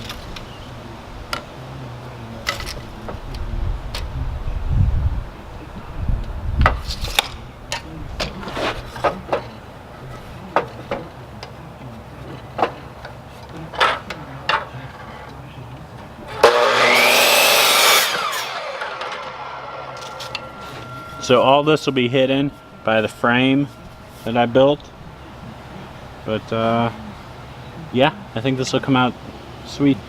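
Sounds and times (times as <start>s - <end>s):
power saw cutting wood: 16.3s - 24.5s.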